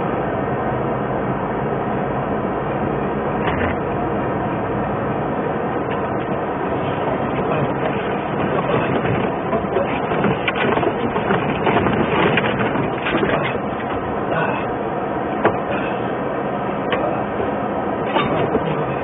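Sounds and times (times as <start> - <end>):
truck engine and road rumble: 0.0 - 19.0
rattles and knocks: 5.9 - 14.0, 18.0 - 19.0.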